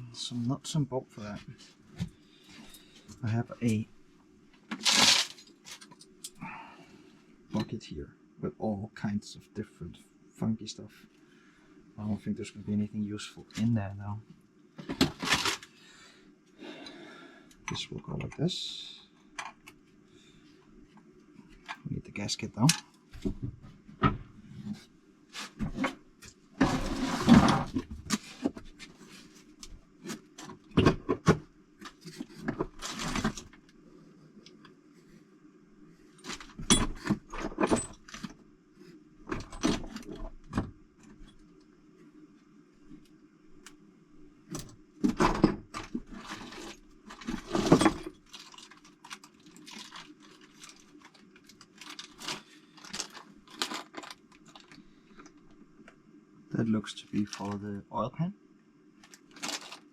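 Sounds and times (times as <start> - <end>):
steady low hum: 0.0 - 59.9
scraping and rustling: 4.7 - 6.0, 24.5 - 30.6, 45.8 - 54.9, 59.0 - 59.9.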